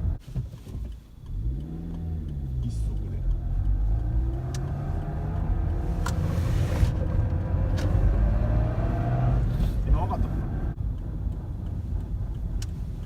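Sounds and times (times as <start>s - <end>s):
sharp knocking clicks: 0.9s - 6.2s
car engine accelerating: 1.2s - 13.0s.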